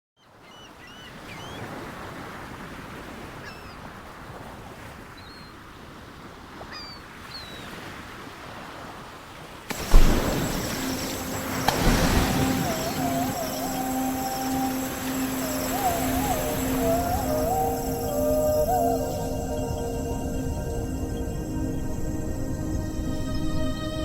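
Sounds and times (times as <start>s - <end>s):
wind: 0.2s - 24.0s
water washing: 9.7s - 19.6s.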